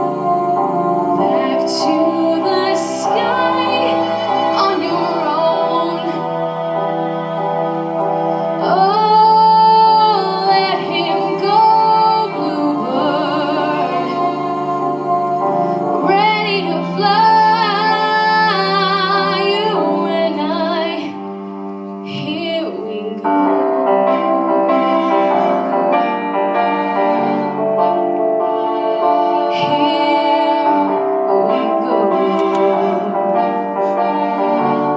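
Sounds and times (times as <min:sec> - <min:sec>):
piano accompaniment: 0:00.0 - 0:34.9
woman singing a slow ballad: 0:22.1 - 0:24.9.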